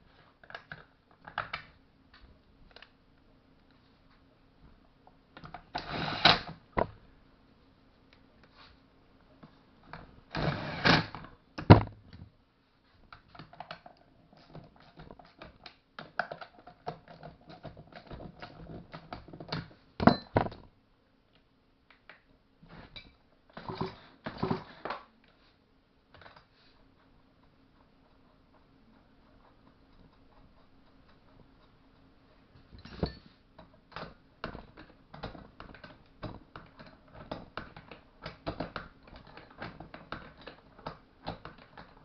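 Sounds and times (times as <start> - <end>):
hand tools clicking and tapping: 29.3 - 42.0.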